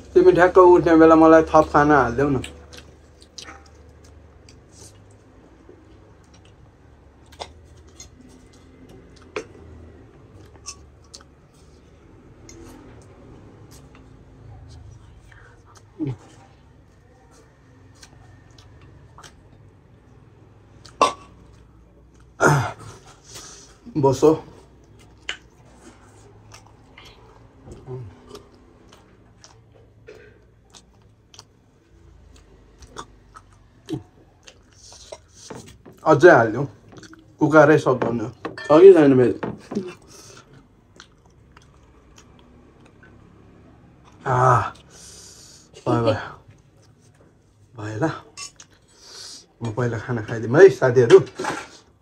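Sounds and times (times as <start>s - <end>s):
person chewing food: 1.5s - 23.5s, 24.6s - 36.1s, 36.7s - 37.4s, 39.5s - 45.2s, 48.3s - 49.6s.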